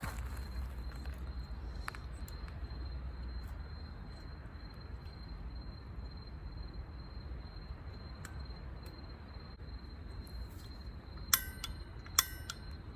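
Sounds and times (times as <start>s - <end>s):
insects trilling: 0.0s - 12.9s.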